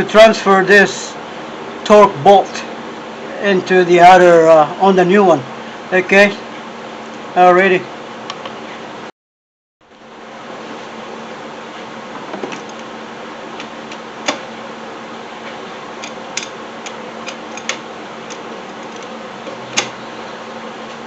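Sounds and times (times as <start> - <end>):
steady background hum: 0.0 - 9.1, 9.8 - 21.0
tools clicking and knocking: 16.0 - 19.9.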